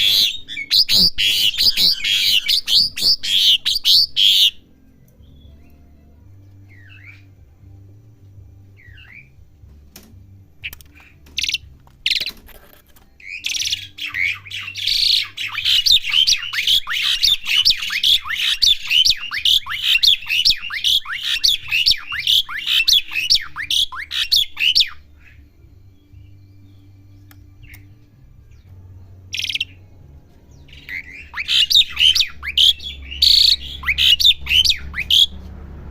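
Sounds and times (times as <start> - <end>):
starling calling: 0.0 - 4.6, 10.6 - 12.4, 13.2 - 25.5, 29.2 - 29.8, 30.6 - 35.5
harsh downward-sliding bird notes: 0.0 - 6.0, 13.2 - 35.9
bird clicks: 9.9 - 13.0.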